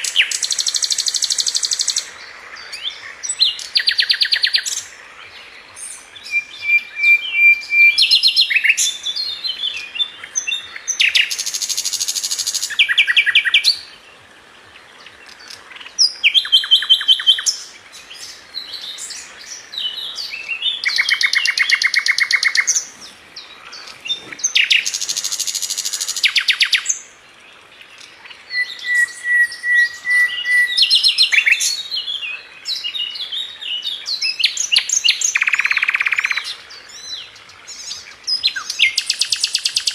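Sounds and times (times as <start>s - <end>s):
bird singing trills and whistles: 5.8s - 13.8s, 16.0s - 22.9s, 28.2s - 39.9s.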